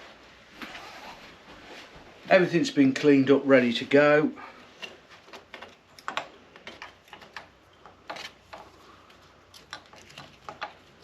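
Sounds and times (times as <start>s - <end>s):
small parts and tools clicking: 4.8s - 11.0s.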